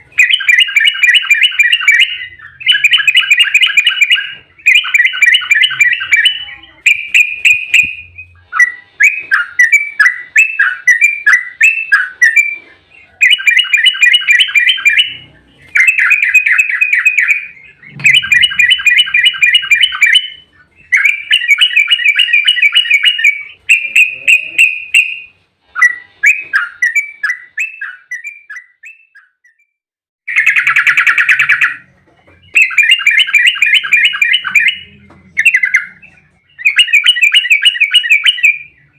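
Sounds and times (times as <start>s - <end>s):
bird chattering song: 0.0s - 29.6s, 30.3s - 38.9s.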